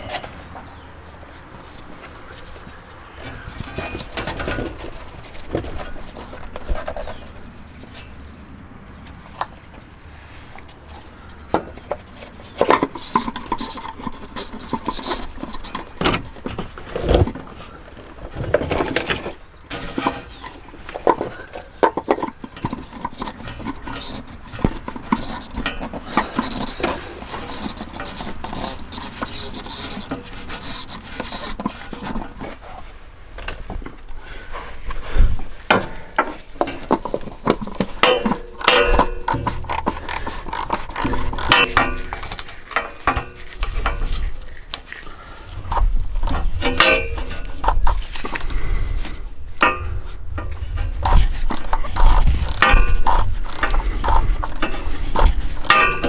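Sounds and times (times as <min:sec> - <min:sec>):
car parts being handled: 0:00.0 - 0:56.0
tools clicking and knocking: 0:18.3 - 0:32.4, 0:35.7 - 0:45.0, 0:45.8 - 0:48.6, 0:49.6 - 0:56.0.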